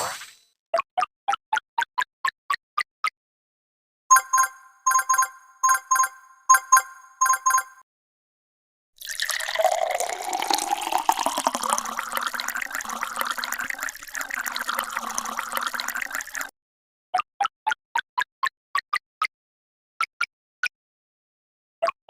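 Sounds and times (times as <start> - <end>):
liquid pouring into container: 9.0 - 16.5.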